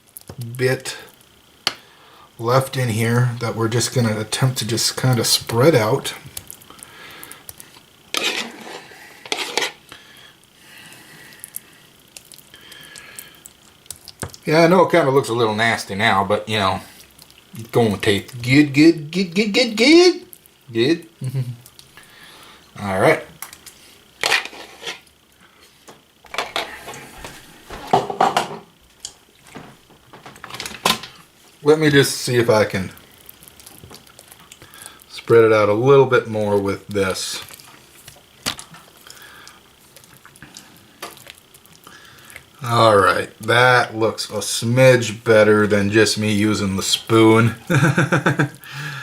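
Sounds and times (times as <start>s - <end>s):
metal spoon scraping can: 8.1s - 9.8s, 24.2s - 25.1s
spoon spreading and clinking: 8.2s - 9.8s.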